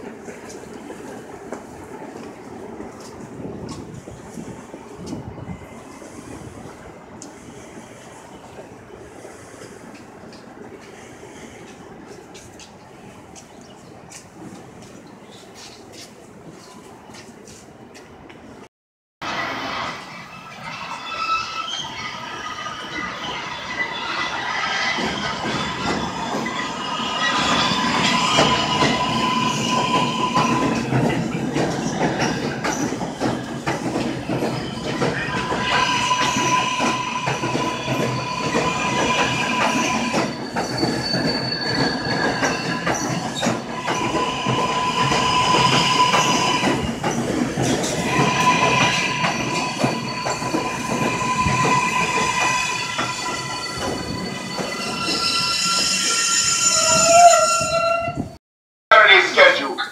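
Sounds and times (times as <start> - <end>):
train wheels rumbling on rail: 0.0 - 58.4
steel wheels squealing: 19.3 - 58.3.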